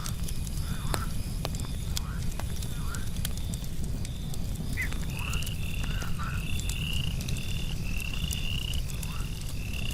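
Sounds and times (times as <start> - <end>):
campfire crackling: 0.0 - 9.9
frogs trilling: 4.8 - 9.9.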